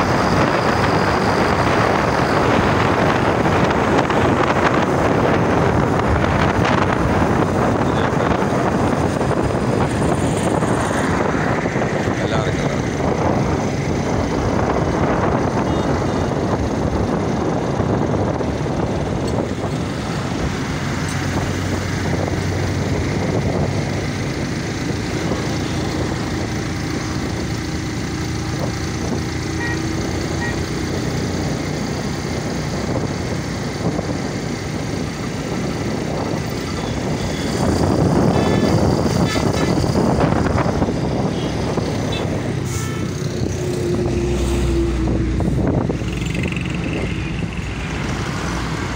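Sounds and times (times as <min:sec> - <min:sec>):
road noise: 0:00.0 - 0:48.9
street traffic: 0:00.0 - 0:48.9
motorcycle engine running: 0:46.0 - 0:47.9.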